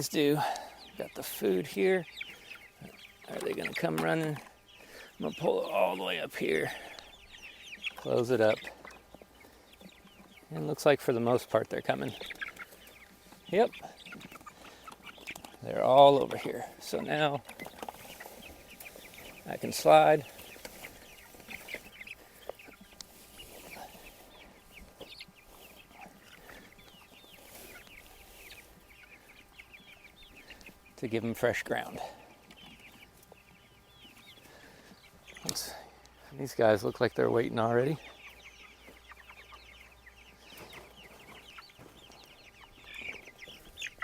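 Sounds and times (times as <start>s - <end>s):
chicks peeping: 0.0s - 44.0s.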